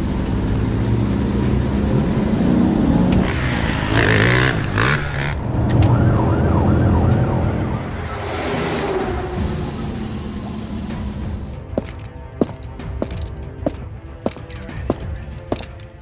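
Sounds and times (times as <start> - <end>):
vehicle engine revving: 0.0 - 11.6
short wavering siren: 5.3 - 9.4.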